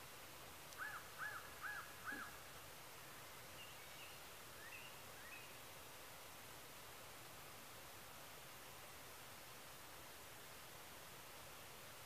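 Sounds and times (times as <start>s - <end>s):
faint high bird chirps: 3.5s - 5.6s.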